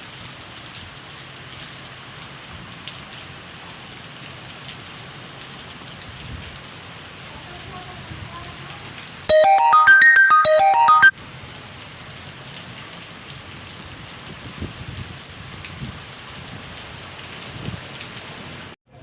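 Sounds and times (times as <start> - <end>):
heavy rain falling: 0.1 - 9.9, 10.8 - 18.7
electronic jingle of stepping notes: 9.3 - 11.1.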